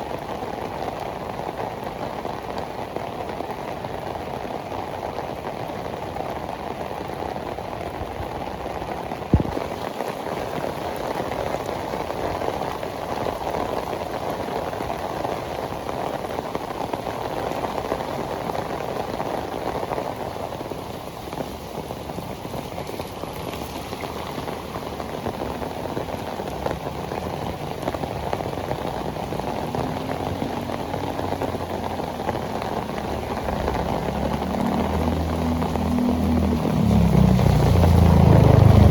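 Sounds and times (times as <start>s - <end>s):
heavy rain on pavement: 0.0s - 38.9s
vehicle engine hum: 28.7s - 38.9s.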